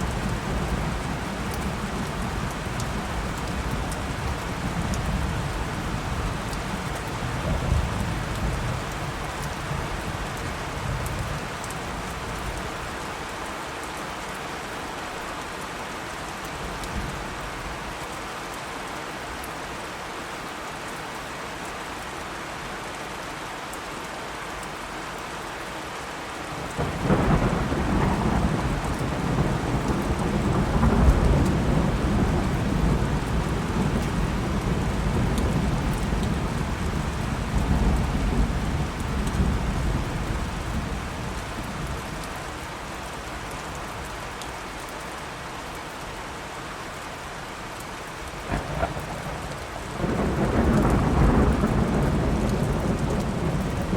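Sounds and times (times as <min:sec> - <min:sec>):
steady rain: 0:00.0 - 0:53.9
thunder rolling: 0:48.4 - 0:53.9.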